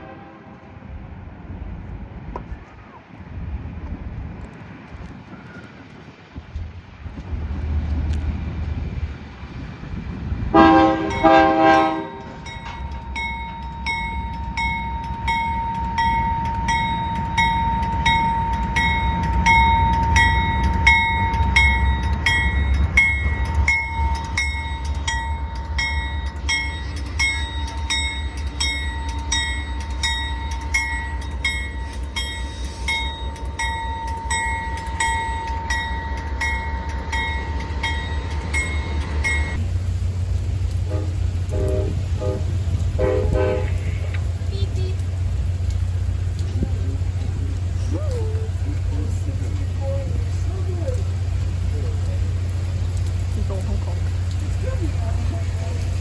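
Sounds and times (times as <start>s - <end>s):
train horn blasts: 0.0s - 1.0s, 10.5s - 13.9s, 40.8s - 44.2s
train rumbling past: 0.0s - 56.0s
metallic ringing strikes: 11.1s - 39.6s.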